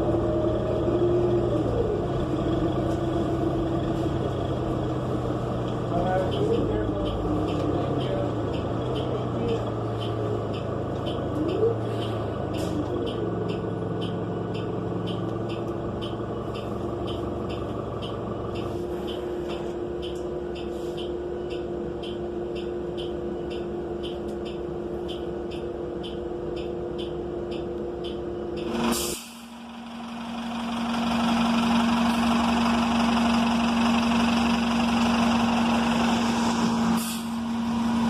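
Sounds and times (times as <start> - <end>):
bus engine drone: 0.0 - 38.0
regular ticking: 1.8 - 28.8.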